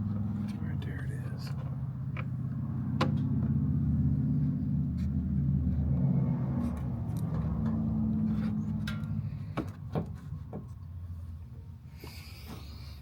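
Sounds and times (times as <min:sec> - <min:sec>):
low motor rumble: 0:00.0 - 0:13.0.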